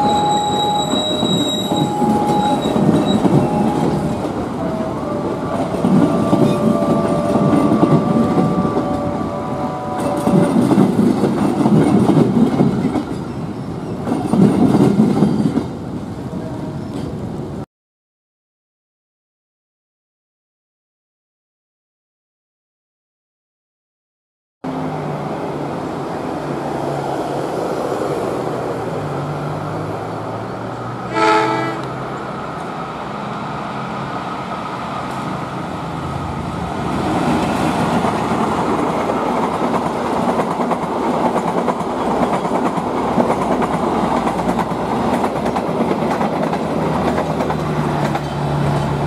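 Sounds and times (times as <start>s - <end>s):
train horn blast: 0.0s - 10.8s, 31.1s - 32.0s
diesel train engine drone: 0.0s - 14.0s, 24.6s - 49.0s
train wheels clattering: 37.2s - 49.0s.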